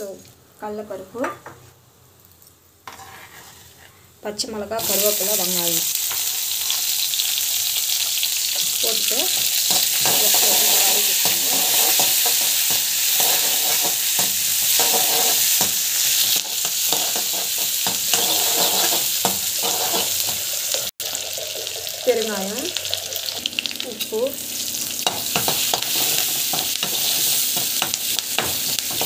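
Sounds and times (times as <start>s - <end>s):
metal skimmer scraping a pan: 2.9s - 4.0s, 9.7s - 15.7s, 16.9s - 20.3s
vegetables sizzling in hot oil: 4.8s - 29.0s.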